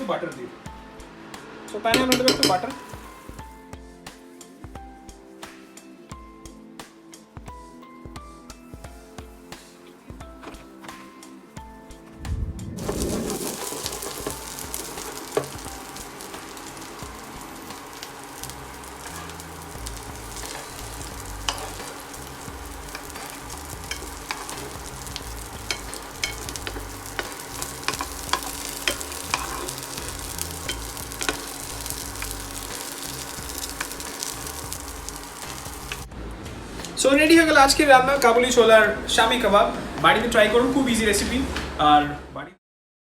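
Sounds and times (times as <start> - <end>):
patties sizzling in a pan: 1.8 - 3.6, 12.8 - 36.1
oil popping and crackling: 12.8 - 36.1.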